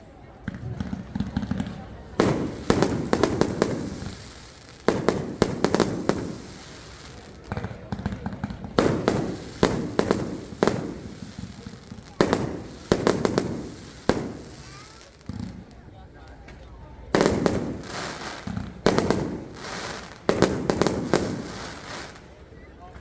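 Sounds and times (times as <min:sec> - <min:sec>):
fireworks bursting with bangs: 0:00.4 - 0:22.5.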